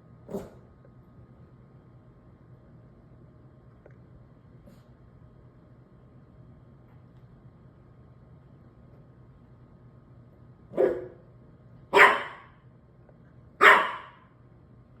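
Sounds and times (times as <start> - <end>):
puppy barking high-pitched: 10.8 - 11.2, 11.9 - 12.6, 13.6 - 14.3.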